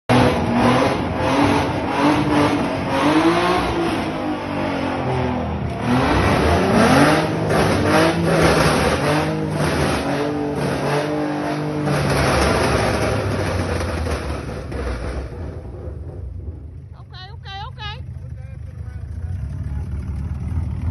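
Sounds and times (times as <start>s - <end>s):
car engine revving hard: 0.1s - 15.8s.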